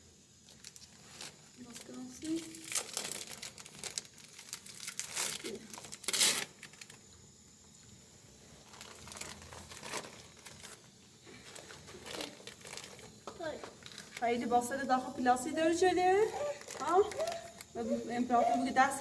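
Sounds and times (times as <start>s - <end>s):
crinkly material rustling: 0.4s - 7.0s, 8.6s - 14.8s, 15.8s - 19.0s.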